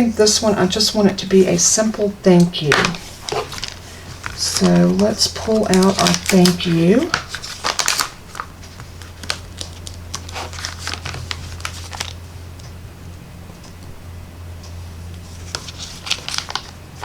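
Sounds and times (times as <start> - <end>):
steady low hum: 0.0 - 17.0
stamp set crinkling and clicking: 2.4 - 12.1.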